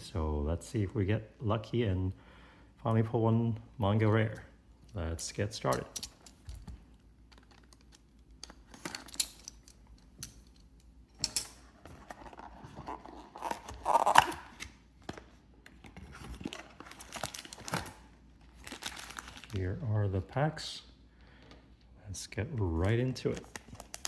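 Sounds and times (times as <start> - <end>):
plastic wrap tearing and crinkling: 12.4 - 14.6, 16.0 - 19.8, 23.2 - 24.0.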